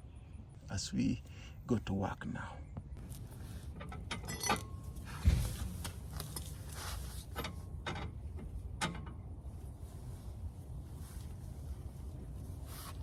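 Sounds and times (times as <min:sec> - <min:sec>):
heavy low thump: 0:05.2 - 0:05.7.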